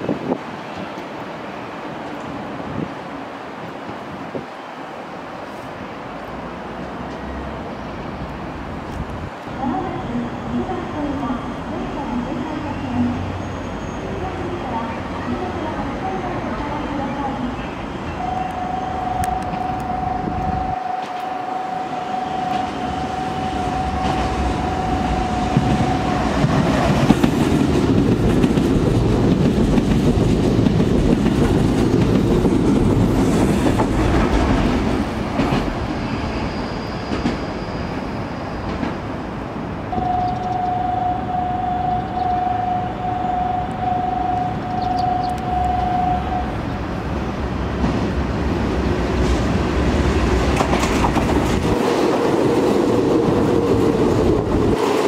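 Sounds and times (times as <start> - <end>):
electric train passing: 0.0 - 55.0
steady high electronic tone: 18.1 - 26.4, 39.9 - 46.7
pulsing tone: 18.2 - 26.3, 39.9 - 46.6
clattering train wheels: 22.4 - 39.2, 47.7 - 55.0.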